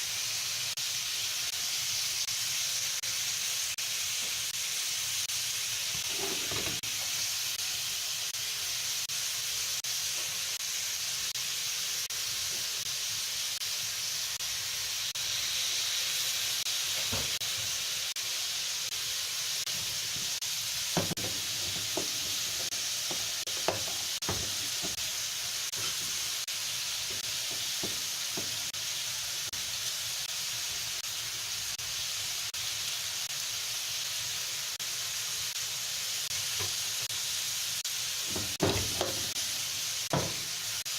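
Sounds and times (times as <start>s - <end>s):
food sizzling in a pan: 0.0s - 40.9s
sharp knocks: 21.0s - 25.0s, 38.3s - 39.4s.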